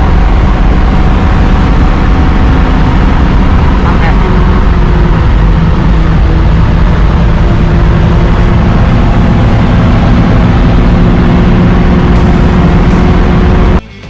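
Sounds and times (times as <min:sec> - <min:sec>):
car engine running loudly: 0:00.0 - 0:14.0.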